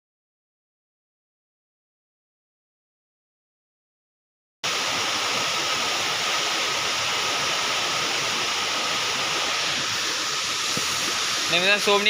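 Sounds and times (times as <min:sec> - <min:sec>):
water rushing: 0:04.6 - 0:12.0.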